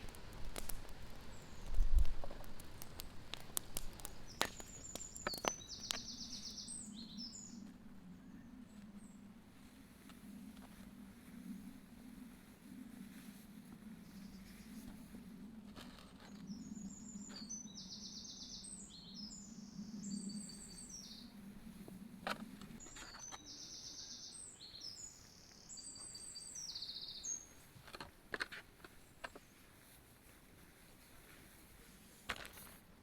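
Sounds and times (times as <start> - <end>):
sharp clicks: 0.0 - 6.2
songbird trilling: 4.3 - 7.6, 16.5 - 21.3, 22.8 - 27.5.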